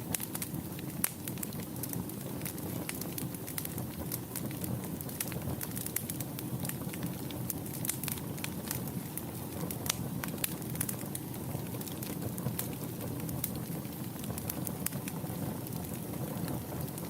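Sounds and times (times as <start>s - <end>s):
fire crackling and popping: 0.0s - 17.0s
low rush of flames: 0.0s - 17.0s.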